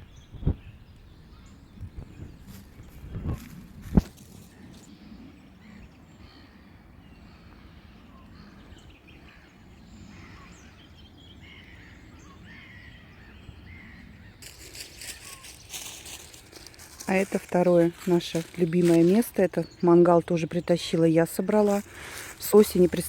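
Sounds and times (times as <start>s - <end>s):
birds chirping: 0.0s - 23.0s
rustling noise: 1.9s - 4.9s, 14.4s - 19.5s, 21.3s - 23.0s.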